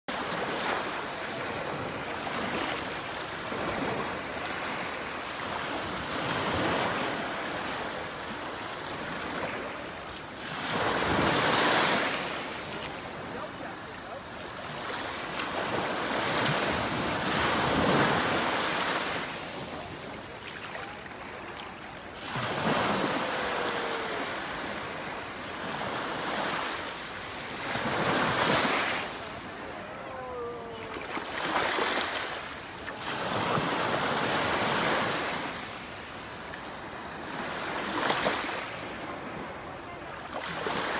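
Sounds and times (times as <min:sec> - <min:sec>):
sea waves breaking: 0:00.1 - 0:39.6.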